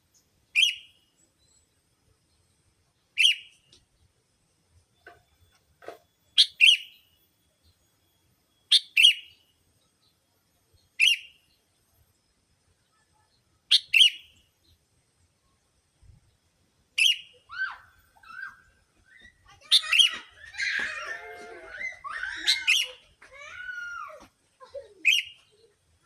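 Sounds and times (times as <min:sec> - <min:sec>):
bird chirps: 0:00.1 - 0:02.5, 0:03.1 - 0:03.8, 0:06.3 - 0:07.9, 0:08.5 - 0:11.7, 0:12.7 - 0:14.8, 0:17.0 - 0:23.1, 0:24.9 - 0:25.8.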